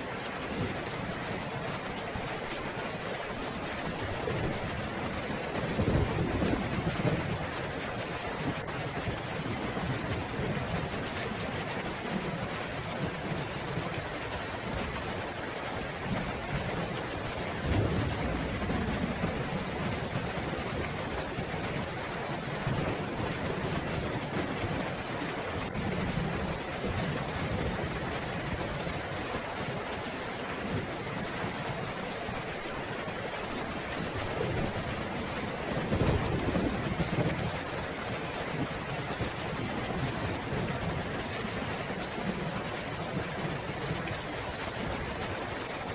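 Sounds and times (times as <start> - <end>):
rain pouring: 0.0 - 45.9
low roll of thunder: 5.7 - 7.6, 17.5 - 20.2.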